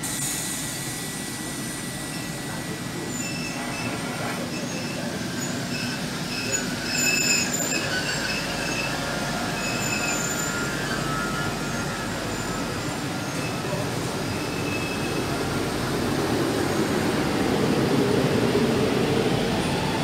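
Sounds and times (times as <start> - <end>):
train wheels rumbling on rails: 0.0 - 20.0
high-pitched train squeals: 0.3 - 15.6.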